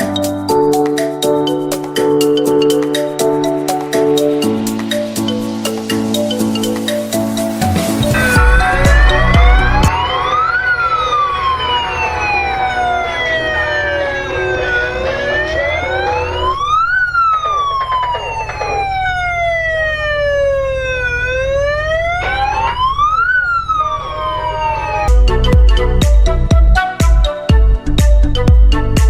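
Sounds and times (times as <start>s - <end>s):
emergency vehicle wail siren: 3.2s - 27.6s
low engine rumble: 7.4s - 26.7s.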